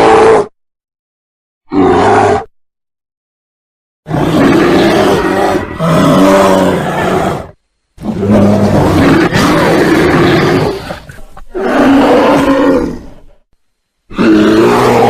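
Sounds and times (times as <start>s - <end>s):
bear roaring: 0.0s - 0.5s, 1.7s - 2.5s, 4.1s - 13.4s, 14.1s - 15.0s.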